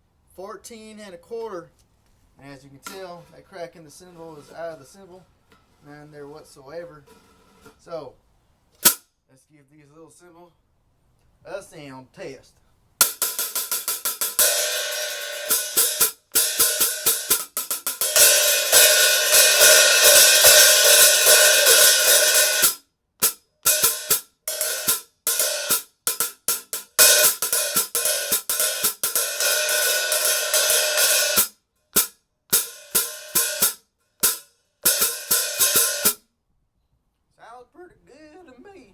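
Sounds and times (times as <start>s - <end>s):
hi-hat cymbals played: 13.0s - 36.2s.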